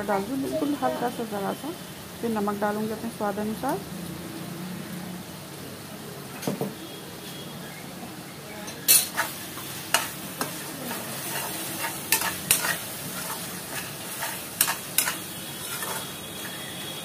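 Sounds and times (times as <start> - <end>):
paste sizzling in oil: 0.0 - 5.6, 8.7 - 17.0
metal spoon stirring and scraping: 8.9 - 17.0.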